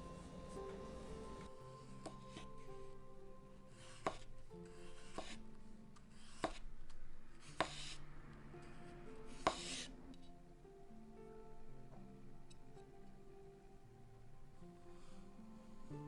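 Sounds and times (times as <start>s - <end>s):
background music: 0.0s - 16.0s
knife cutting on a board: 4.9s - 5.4s, 6.2s - 6.6s, 7.5s - 8.0s, 9.4s - 9.9s.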